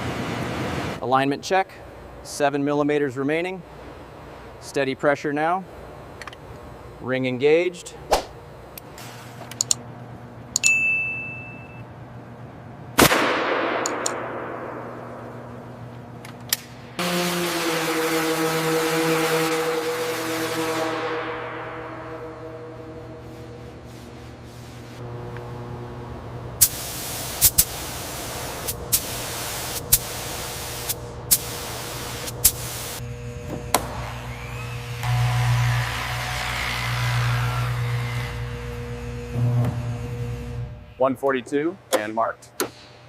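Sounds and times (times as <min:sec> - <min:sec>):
low steady hum: 0:00.0 - 0:43.0
sharp click with ringing ding: 0:10.6 - 0:11.8
loud metallic clang: 0:20.8 - 0:23.2
hiss of spray: 0:26.6 - 0:33.0.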